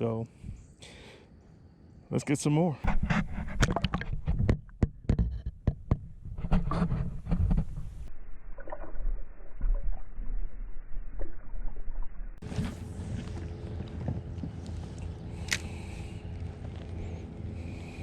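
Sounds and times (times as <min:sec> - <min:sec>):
steady low noise: 0:08.0 - 0:18.0.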